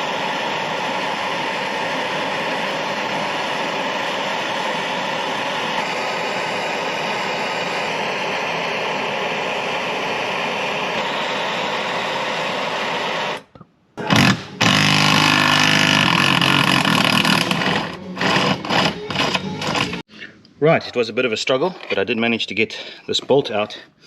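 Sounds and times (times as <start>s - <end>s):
gas torch flame hissing: 0.0s - 20.1s.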